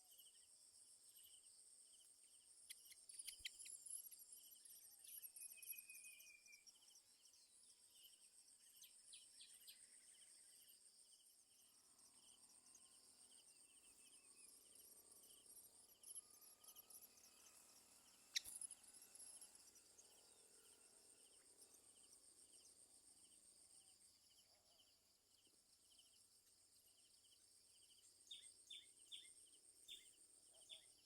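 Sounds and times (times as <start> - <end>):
insect chorus buzzing and chirping: 0.0 - 31.0.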